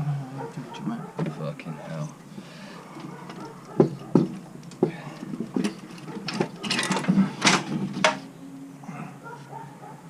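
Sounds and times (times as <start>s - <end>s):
metallic knocks and clanks: 3.3s - 8.3s.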